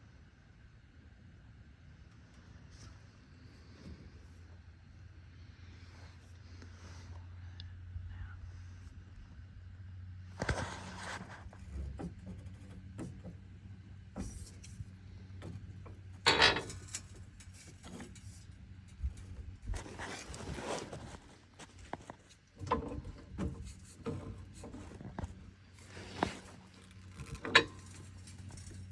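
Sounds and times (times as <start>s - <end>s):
steady low hum: 0.0s - 28.9s
tools scraping and clicking: 16.2s - 18.5s, 23.6s - 28.9s.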